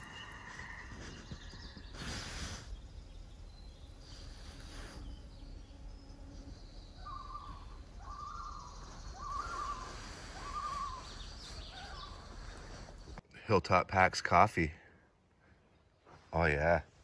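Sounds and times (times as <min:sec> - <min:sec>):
bird whistling wavering notes: 0:06.9 - 0:12.2.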